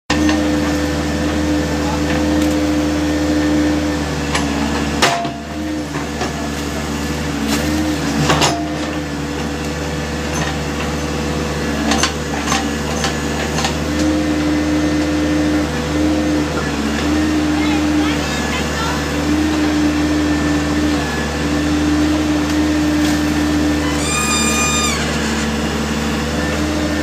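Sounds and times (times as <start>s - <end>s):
diesel engine running: 0.1s - 27.0s.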